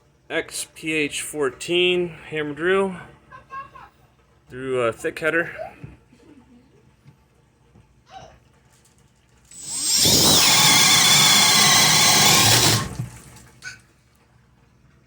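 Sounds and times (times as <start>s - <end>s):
drill boring through wood: 9.5s - 13.2s.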